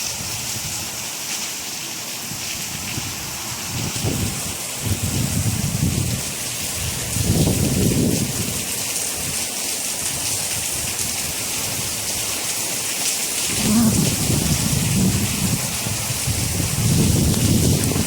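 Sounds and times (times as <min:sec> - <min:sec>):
heavy rain hissing: 0:00.0 - 0:18.0
rolling thunder rumbling: 0:13.5 - 0:18.0.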